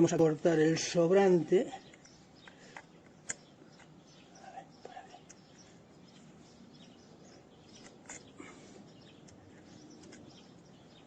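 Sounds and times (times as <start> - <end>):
faint background hum: 0.0 - 11.0
small clicks: 1.9 - 4.0, 10.0 - 10.4.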